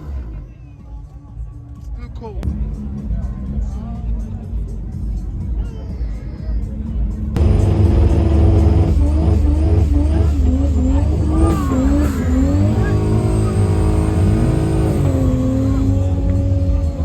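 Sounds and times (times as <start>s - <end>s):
car engine revving: 7.4s - 17.0s.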